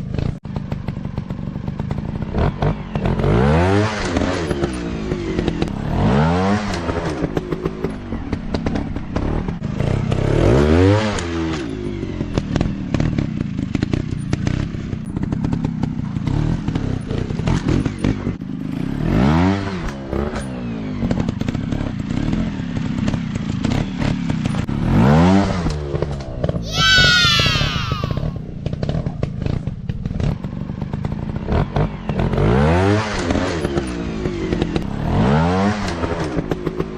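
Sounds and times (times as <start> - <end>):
dirt bike engine revving: 26.6 - 36.9.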